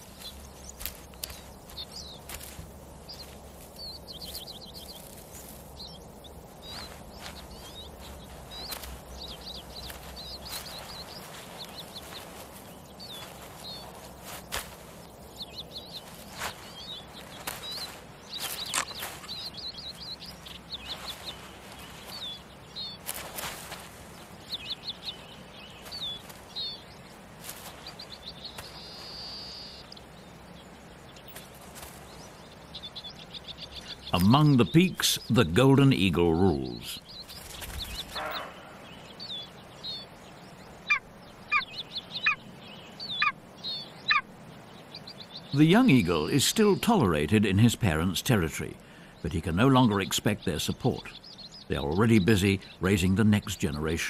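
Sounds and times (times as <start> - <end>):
rustling: 0.0 - 32.9
small birds chirping: 0.0 - 54.0.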